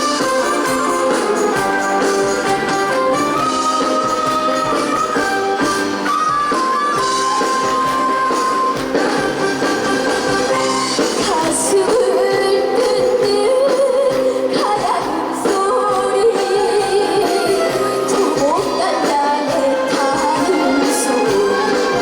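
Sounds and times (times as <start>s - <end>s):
band backing track: 0.0s - 22.0s
girl singing: 11.2s - 22.0s.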